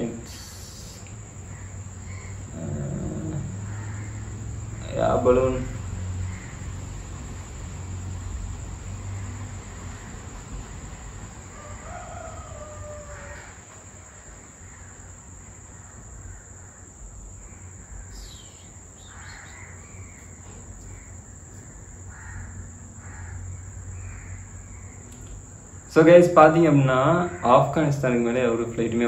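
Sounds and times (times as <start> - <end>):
thin high whine: 0.0 - 6.6
faint bird calls: 0.0 - 7.1, 11.5 - 28.2
steady low hum: 0.0 - 29.0.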